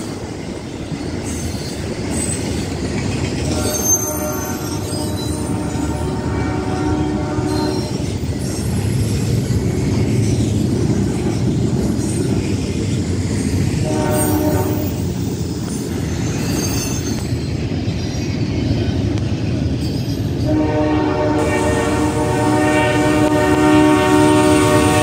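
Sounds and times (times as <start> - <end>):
freight train rumbling over rails: 0.0 - 25.0
locomotive air horn blasts: 3.4 - 8.0, 13.8 - 15.0, 20.4 - 25.0.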